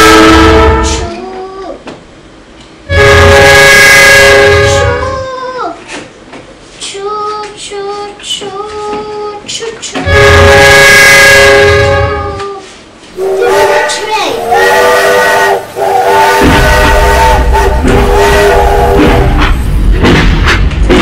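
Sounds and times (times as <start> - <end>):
toy train horn blast: 0.0 - 1.2, 2.9 - 5.2, 10.0 - 12.6, 13.2 - 19.6.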